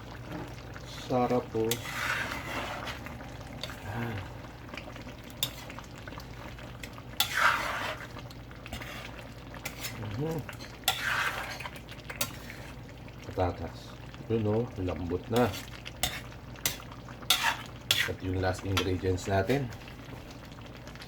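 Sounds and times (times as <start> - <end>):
spoon scraping a pot: 1.3 - 3.8, 5.3 - 5.8, 6.9 - 12.8, 15.4 - 18.9.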